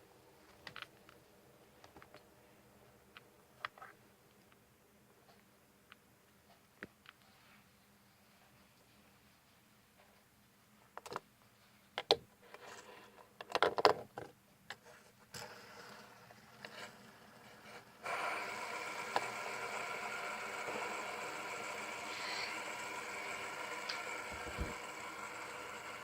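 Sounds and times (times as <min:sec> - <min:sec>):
fidget spinner whirring: 0:15.3 - 0:26.0
fidget spinner clicks and knocks: 0:18.9 - 0:20.4, 0:22.2 - 0:26.0.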